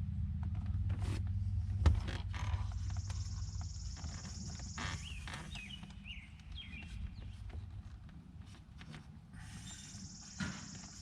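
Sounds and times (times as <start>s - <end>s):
steady low hum: 0.0s - 11.0s
bird chirping: 2.9s - 7.7s.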